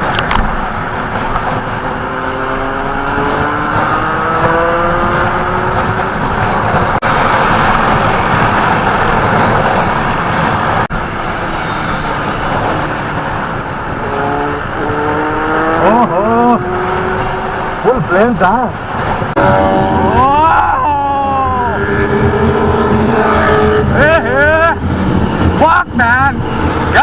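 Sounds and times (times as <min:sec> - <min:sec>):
wind and road noise: 0:00.0 - 0:27.0
motorcycle engine accelerating: 0:01.1 - 0:10.9, 0:13.9 - 0:17.8, 0:18.9 - 0:25.6.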